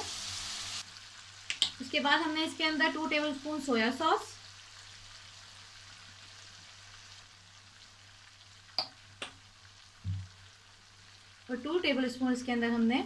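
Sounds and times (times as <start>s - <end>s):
chicken sizzling in oil: 0.0s - 13.0s
short low thump: 10.0s - 10.3s.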